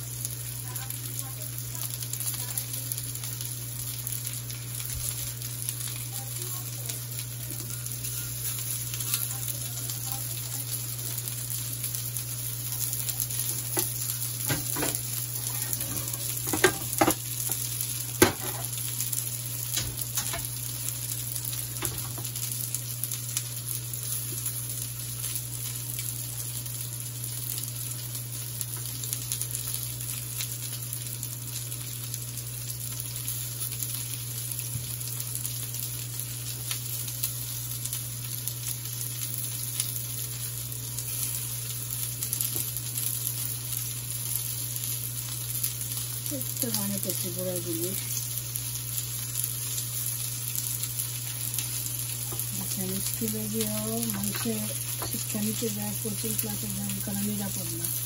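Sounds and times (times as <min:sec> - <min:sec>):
low steady hum: 0:00.0 - 0:58.0
patties sizzling in oil: 0:00.0 - 0:58.0
utensil clicking on frying pan: 0:13.7 - 0:18.8, 0:19.7 - 0:20.6.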